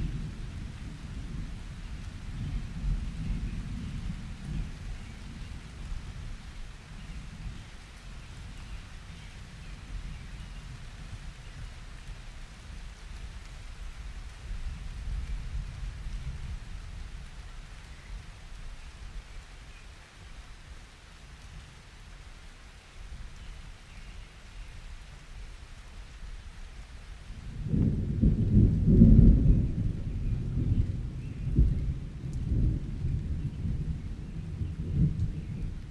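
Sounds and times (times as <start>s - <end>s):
steady rain: 0.0s - 35.9s
rolling thunder: 27.3s - 35.9s.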